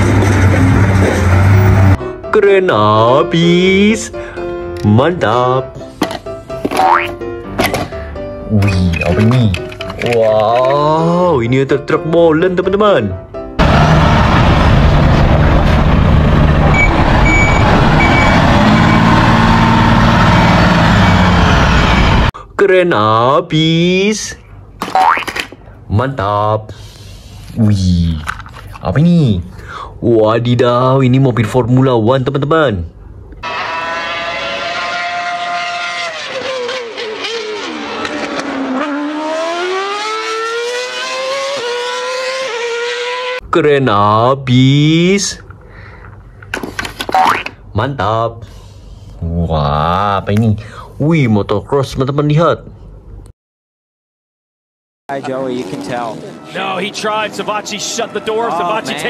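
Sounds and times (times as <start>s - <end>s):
race car engine revving: 0.0s - 2.0s, 13.6s - 22.3s, 33.4s - 43.4s, 55.1s - 59.0s
truck engine running: 0.0s - 2.0s, 13.6s - 22.3s
reversing alarm beeping: 16.7s - 19.2s, 20.8s - 22.3s.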